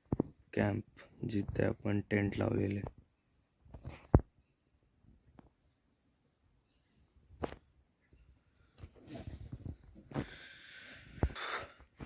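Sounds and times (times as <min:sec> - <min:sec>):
crickets chirping: 0:00.0 - 0:12.0
rustling: 0:08.8 - 0:12.0.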